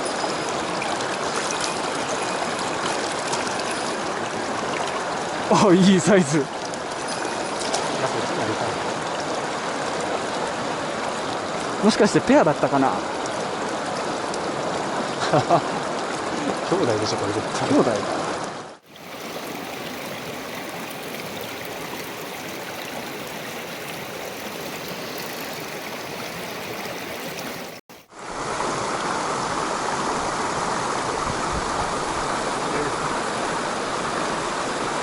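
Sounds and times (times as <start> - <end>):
stream water rushing: 0.0 - 35.0.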